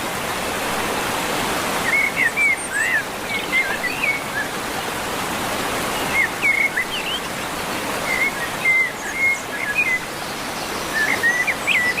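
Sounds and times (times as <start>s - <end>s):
songbird singing: 1.8s - 4.6s, 5.9s - 12.0s.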